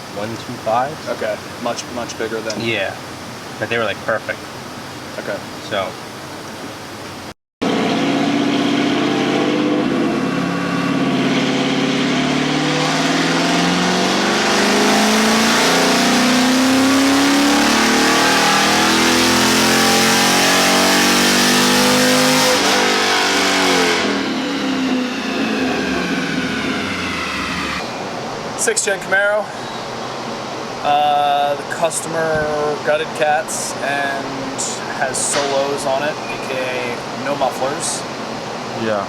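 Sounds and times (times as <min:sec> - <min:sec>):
engine revving at full throttle: 0:07.6 - 0:27.9.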